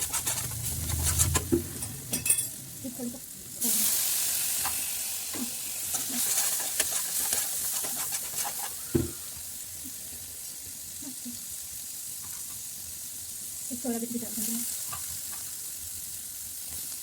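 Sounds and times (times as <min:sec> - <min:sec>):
spoon scraping a pan: 0:00.0 - 0:02.6, 0:03.8 - 0:09.3, 0:12.2 - 0:12.7, 0:14.6 - 0:15.6
vegetables sizzling in hot oil: 0:00.0 - 0:17.0.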